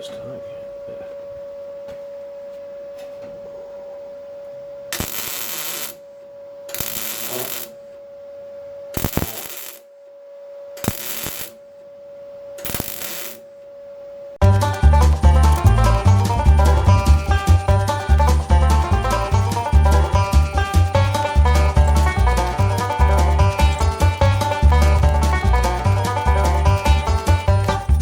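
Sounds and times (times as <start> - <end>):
faint welder hum: 0.5 - 14.4
welding arc crackle: 4.9 - 6.1, 6.7 - 7.8, 9.0 - 9.9, 10.8 - 11.7, 12.6 - 13.6, 15.0 - 28.0
background music: 14.4 - 28.0.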